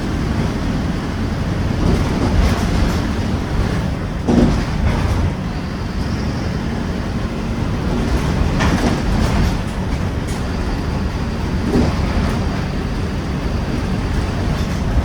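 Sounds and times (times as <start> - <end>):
bus diesel engine running: 0.0 - 15.0
road noise: 0.0 - 15.0
knocks from bus body: 1.7 - 5.5, 7.9 - 10.8, 11.6 - 12.7.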